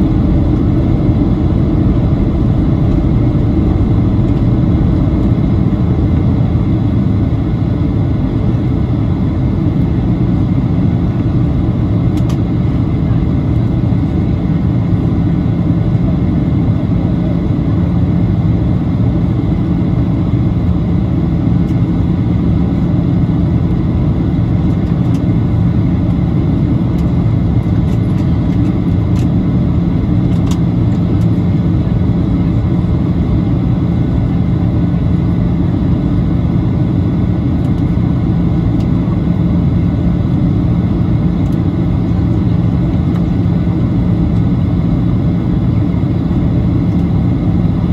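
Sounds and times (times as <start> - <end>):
airflow rushing: 0.0 - 8.0
jet engines droning: 0.0 - 47.9
steady low hum: 0.0 - 47.9.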